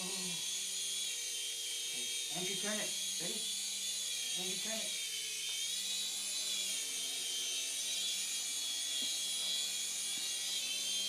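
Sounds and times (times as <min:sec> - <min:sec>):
toy helicopter motor whining: 0:00.0 - 0:11.0.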